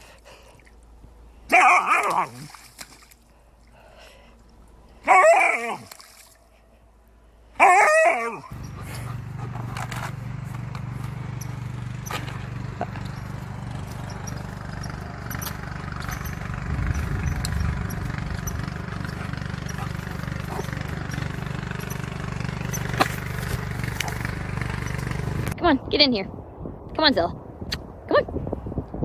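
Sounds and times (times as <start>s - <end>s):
steady low hum: 8.4s - 26.6s
dog barking: 19.7s - 20.8s.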